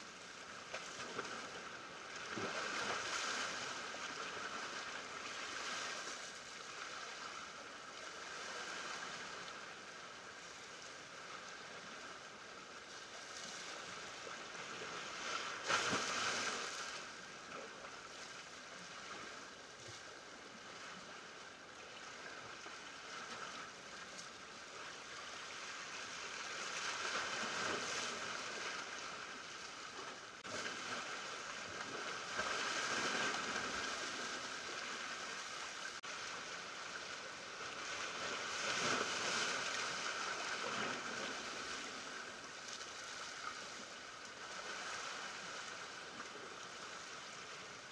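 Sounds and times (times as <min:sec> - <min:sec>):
waves washing over rocks: 0:30.4 - 0:42.2.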